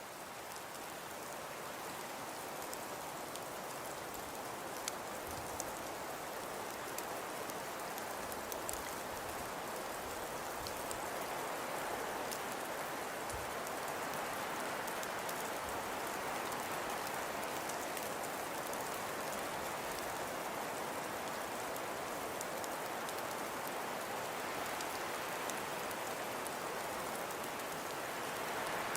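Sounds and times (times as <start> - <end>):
rain hissing on surfaces: 0.0 - 28.9
light ticks: 2.6 - 11.0, 12.2 - 14.2, 21.1 - 28.9.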